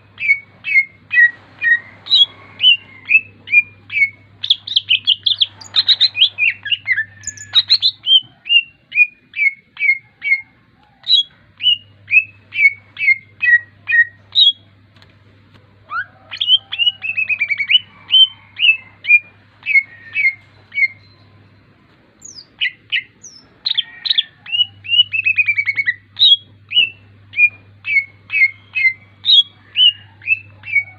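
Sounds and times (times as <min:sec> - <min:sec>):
faint low hum: 0:00.0 - 0:30.9
songbird whistling: 0:00.2 - 0:14.7, 0:15.9 - 0:21.4, 0:22.2 - 0:30.9.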